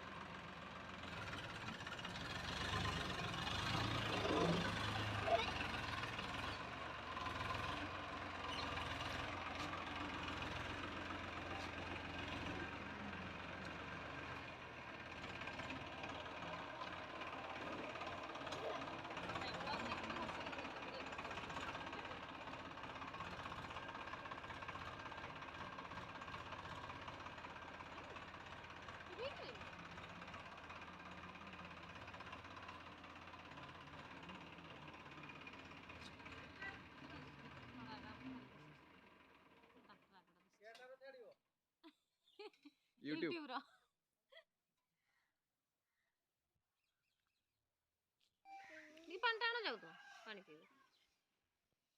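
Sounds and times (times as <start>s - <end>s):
tractor engine running: 0.0s - 40.4s.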